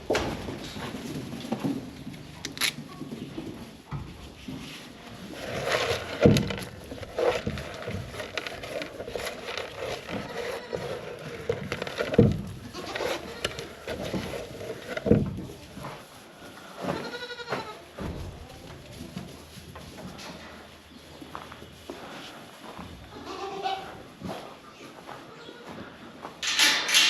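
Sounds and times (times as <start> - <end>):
livestock bleating: 16.8 - 17.8, 23.1 - 23.9.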